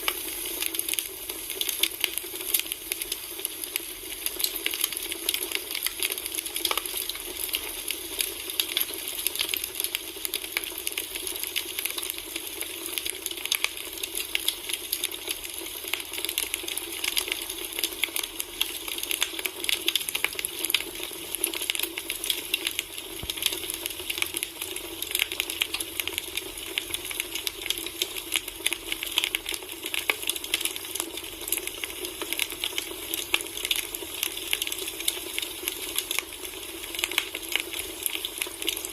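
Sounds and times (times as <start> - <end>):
soft fire hiss: 0.0 - 3.1
campfire crackling and popping: 0.0 - 38.9.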